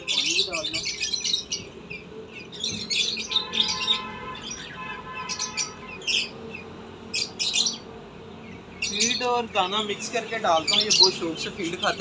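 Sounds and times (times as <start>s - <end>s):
bird call of steady tones: 0.0s - 12.0s
birds chirping in high bursts: 0.0s - 12.0s.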